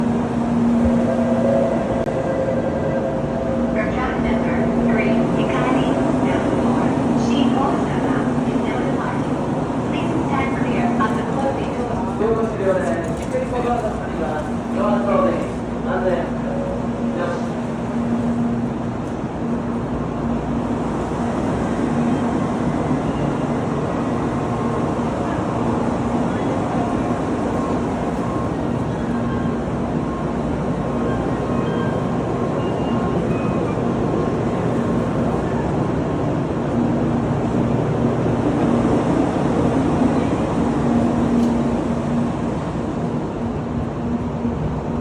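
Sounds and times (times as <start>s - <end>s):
train rumbling: 0.0s - 45.0s.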